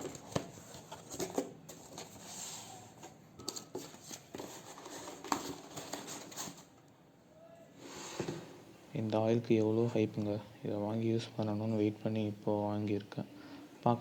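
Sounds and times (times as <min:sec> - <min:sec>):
cardboard rustling: 0:00.0 - 0:06.8.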